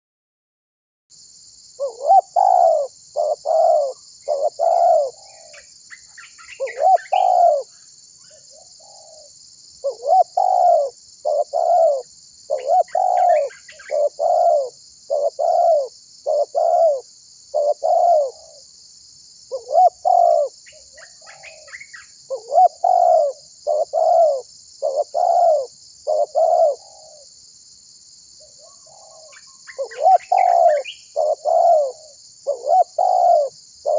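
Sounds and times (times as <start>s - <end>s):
faint small bird chirps: 1.7s - 18.6s, 19.4s - 27.3s, 28.4s - 33.9s
dove cooing: 1.8s - 5.6s, 6.4s - 7.7s, 8.3s - 18.6s, 19.5s - 27.2s, 28.5s - 33.9s.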